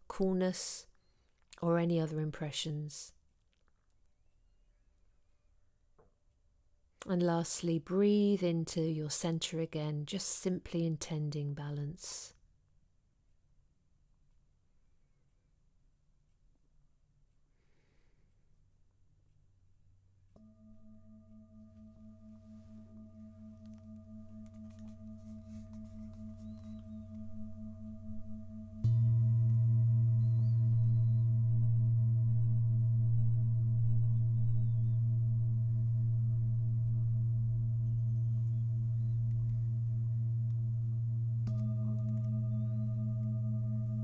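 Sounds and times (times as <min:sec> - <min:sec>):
singing bowl ringing: 0:20.4 - 0:44.0.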